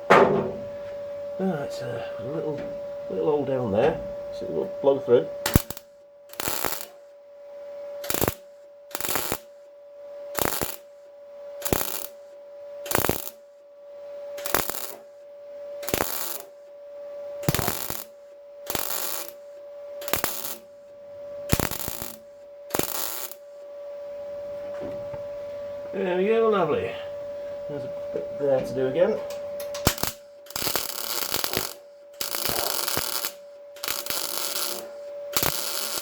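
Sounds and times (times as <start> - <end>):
steady welder hum: 0.0 - 36.0
welder crackling bursts: 3.2 - 7.1, 8.0 - 9.6, 10.3 - 13.6, 14.4 - 15.2, 15.8 - 16.7, 17.4 - 20.9, 21.5 - 23.6, 29.6 - 36.0.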